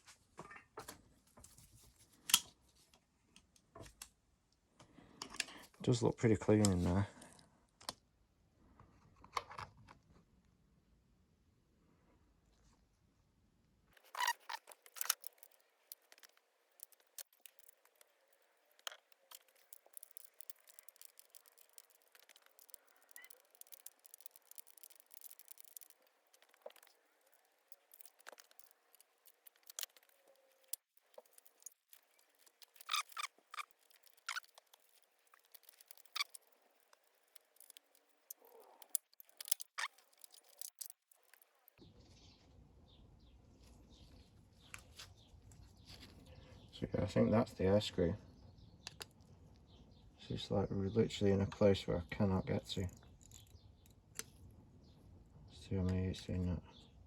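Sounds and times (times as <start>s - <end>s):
small metal parts and tools clicking: 14.0s - 41.8s, 52.7s - 54.5s.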